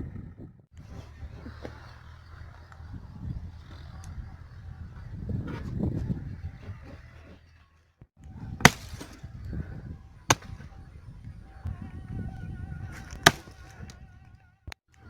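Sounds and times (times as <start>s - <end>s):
axe chopping into tree: 8.6s - 9.3s, 10.3s - 10.7s, 13.0s - 13.9s.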